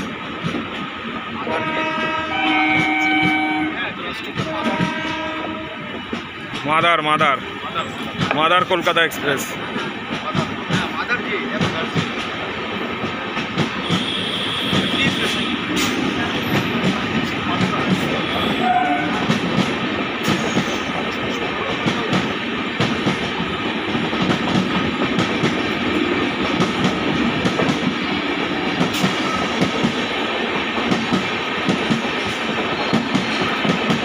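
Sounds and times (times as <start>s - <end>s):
train coaches rumbling past: 0.0s - 34.0s.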